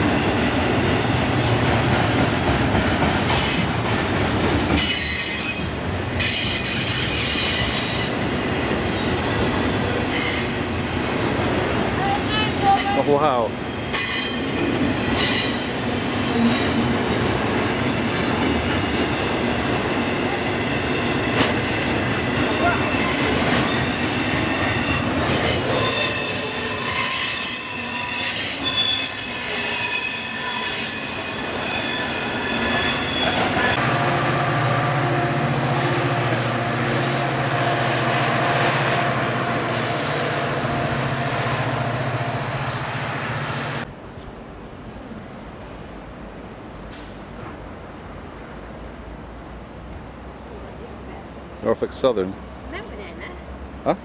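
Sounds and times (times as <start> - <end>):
dull train rumble: 0.0 - 29.6
steel wheels rushing on rails: 0.0 - 45.0
shrill wheel squeal: 3.2 - 3.8, 4.8 - 8.2, 9.9 - 10.7, 13.9 - 33.8, 43.8 - 51.7.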